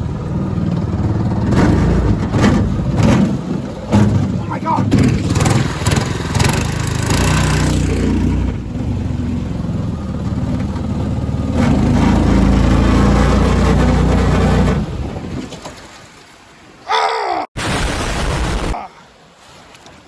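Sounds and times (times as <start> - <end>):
boat motor running: 0.0 - 15.4.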